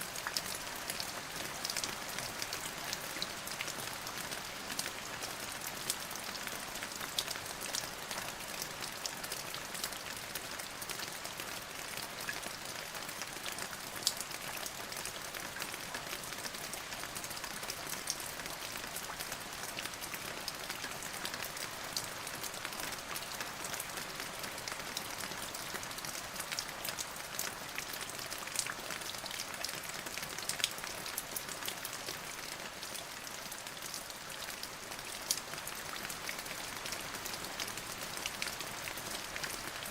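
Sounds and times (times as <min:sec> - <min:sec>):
steady rain hiss: 0:30.5 - 0:39.9.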